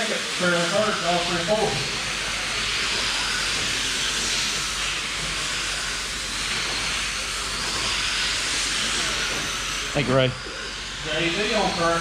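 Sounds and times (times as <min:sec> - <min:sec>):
rc car motors whining: 0:00.0 - 0:12.0.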